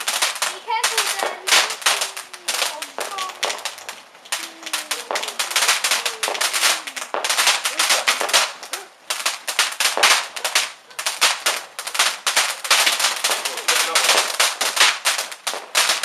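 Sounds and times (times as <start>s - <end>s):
fireworks crackling: 0.0s - 16.0s.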